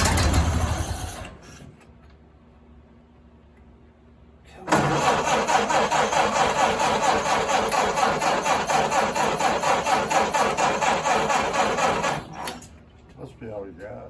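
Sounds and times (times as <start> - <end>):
starter cranking engine: 0.0 - 1.4, 4.7 - 12.6.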